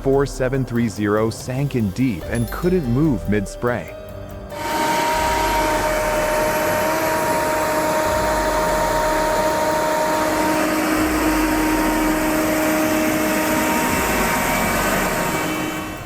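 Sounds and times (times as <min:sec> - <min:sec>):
lower whine: 0:04.2 - 0:16.0
rushing machine noise: 0:04.2 - 0:16.0
high steady whine: 0:04.5 - 0:16.0.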